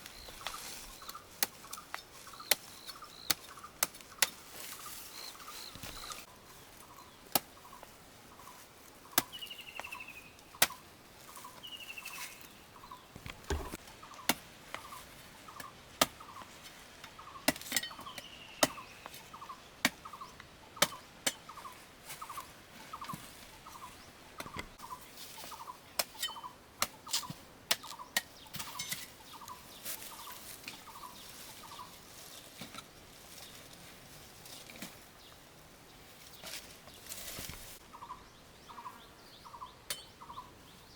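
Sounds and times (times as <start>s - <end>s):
sharp clicks and knocks: 13.2s - 13.8s.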